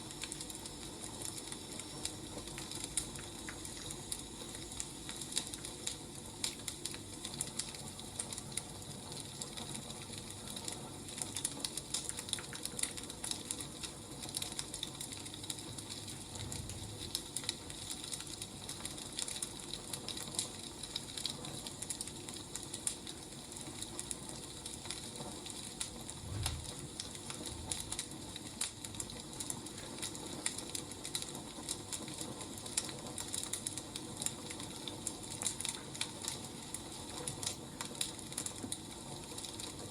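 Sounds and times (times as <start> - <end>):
wood fire crackling: 0.0 - 39.9
low thuds: 26.2 - 26.8.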